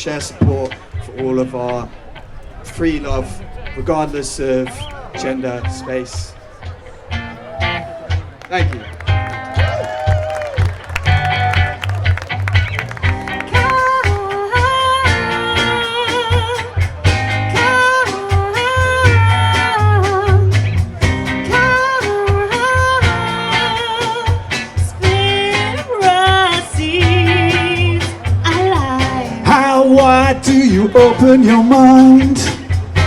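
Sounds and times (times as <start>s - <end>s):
drums: 0.0s - 33.0s
wavering melodic lead line: 4.6s - 9.8s
bass: 7.2s - 33.0s.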